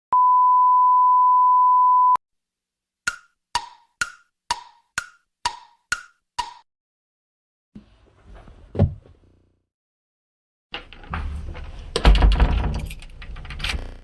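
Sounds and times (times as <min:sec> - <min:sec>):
high pure beep: 0:00.1 - 0:02.2
wood-block-like ticks: 0:03.1 - 0:06.7.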